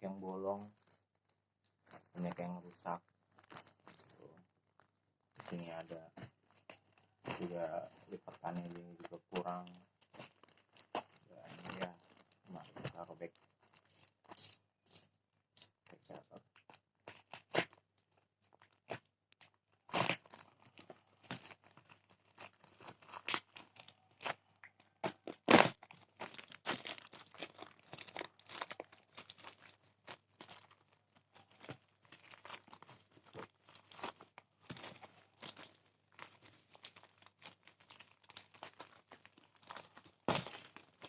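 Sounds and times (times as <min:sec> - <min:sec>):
wrapping crinkling: 0:00.1 - 0:41.0
package tearing open: 0:19.9 - 0:34.3.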